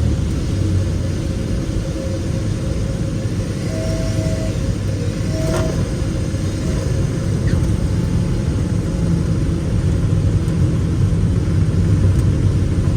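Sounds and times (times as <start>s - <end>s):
airplane piston engine rumbling: 0.0s - 12.9s.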